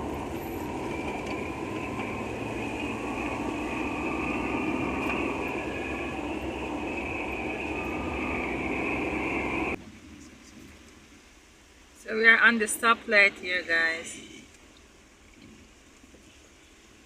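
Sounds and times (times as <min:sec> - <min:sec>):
car tyres on wet road: 0:00.0 - 0:09.8.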